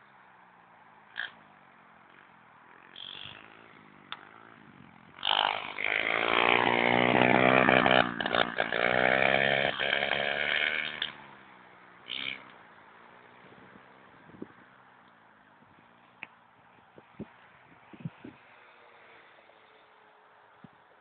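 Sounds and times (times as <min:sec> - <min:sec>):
pit bike engine revving: 0:01.2 - 0:12.6.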